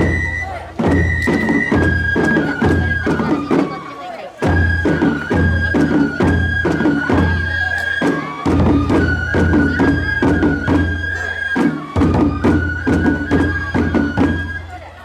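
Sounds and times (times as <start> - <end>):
bamboo flute long notes: 0.0 - 15.0.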